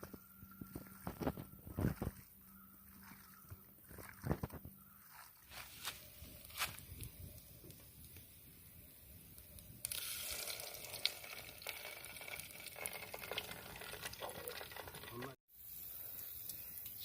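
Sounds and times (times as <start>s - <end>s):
food sizzling in hot oil: 6.1s - 17.0s.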